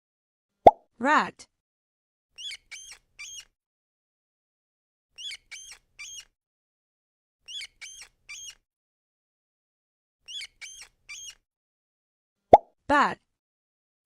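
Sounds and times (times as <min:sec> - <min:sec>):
rat squeaking: 0:02.4 - 0:03.5, 0:05.2 - 0:06.3, 0:07.5 - 0:08.6, 0:10.3 - 0:11.4.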